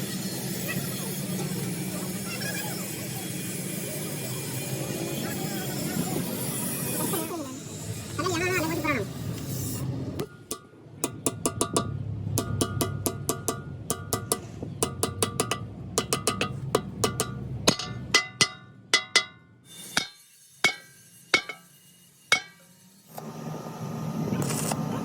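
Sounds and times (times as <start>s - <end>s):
hammer ringing on metal: 10.4s - 19.4s, 20.0s - 21.7s, 22.3s - 22.6s.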